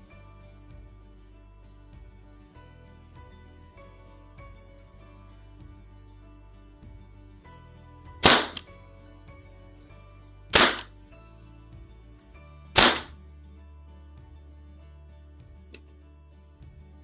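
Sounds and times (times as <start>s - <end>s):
background music: 0.0s - 17.0s
loud sharp snaps: 8.2s - 8.6s, 10.6s - 10.9s, 12.8s - 13.1s.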